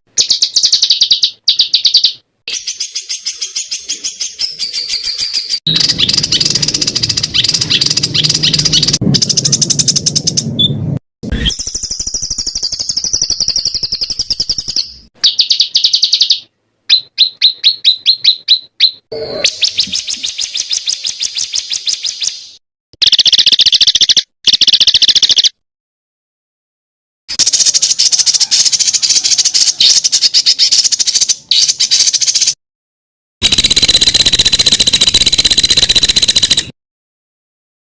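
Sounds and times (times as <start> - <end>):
songbird trilling: 0.2 - 10.8, 11.4 - 22.4.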